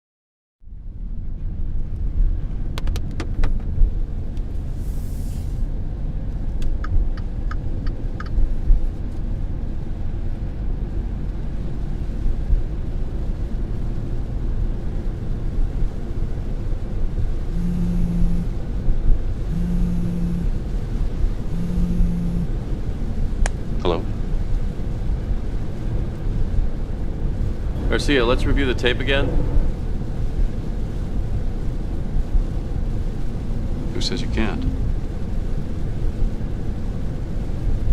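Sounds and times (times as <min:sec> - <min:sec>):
car interior rumble: 0:00.6 - 0:37.9
phone vibrating: 0:17.5 - 0:18.5, 0:19.5 - 0:20.5, 0:21.5 - 0:22.5
clicks and short blips: 0:21.6 - 0:22.5.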